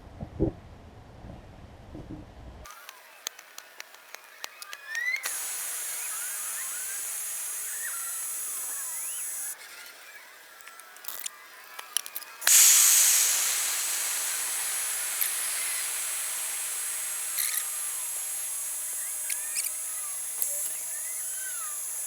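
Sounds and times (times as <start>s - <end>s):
small clicks: 2.7s - 9.6s, 17.0s - 22.0s
blower hiss and motor whine: 2.7s - 22.0s.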